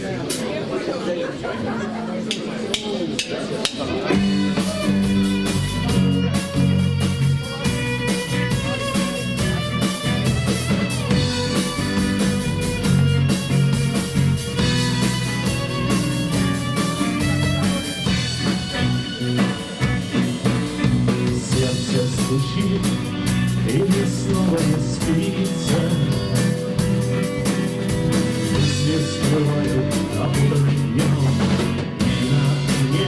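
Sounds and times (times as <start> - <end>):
drum kit beat: 2.3 - 33.0
bass guitar: 3.7 - 33.0
electric guitar: 3.8 - 33.0.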